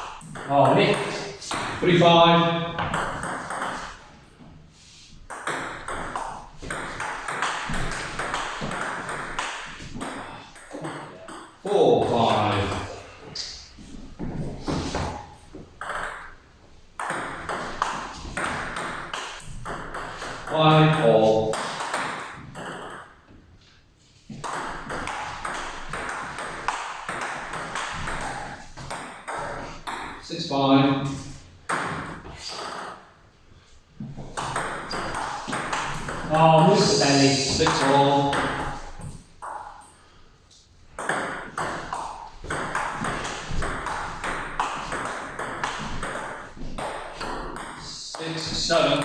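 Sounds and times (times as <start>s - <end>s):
table tennis ball pinging: 0.0s - 4.1s, 5.3s - 13.1s, 14.9s - 16.4s, 17.0s - 23.4s, 24.3s - 30.2s, 31.6s - 33.1s, 34.0s - 40.1s, 40.9s - 49.0s.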